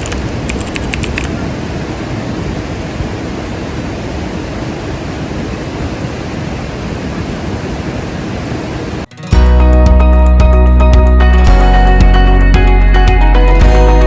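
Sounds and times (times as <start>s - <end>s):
large waterfall rushing: 0.0s - 9.1s.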